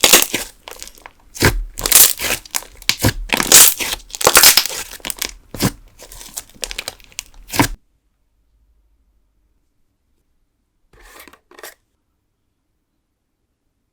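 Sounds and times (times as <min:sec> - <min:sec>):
slime crackling and popping: 0:00.0 - 0:07.8.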